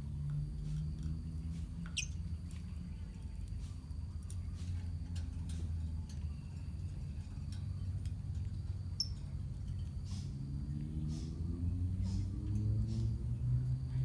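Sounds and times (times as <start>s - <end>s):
lovebirds squeaking and clicking: 1.8s - 2.2s, 9.0s - 9.3s
high bird chirp: 1.9s - 2.2s.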